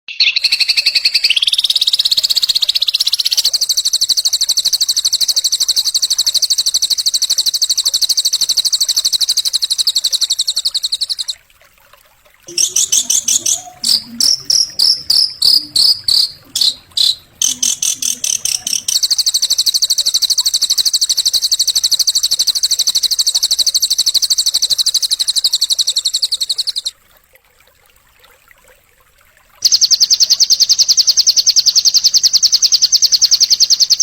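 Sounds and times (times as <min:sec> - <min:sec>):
songbird rapid pulsing trill: 0:00.1 - 0:11.4, 0:12.5 - 0:26.9, 0:29.6 - 0:34.0
bird chirps and rattles: 0:00.2 - 0:11.4, 0:12.5 - 0:26.9.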